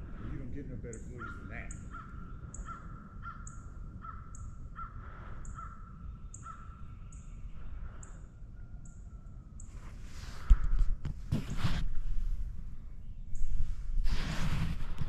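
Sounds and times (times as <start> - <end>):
bird calling repeatedly: 0.8 - 7.4.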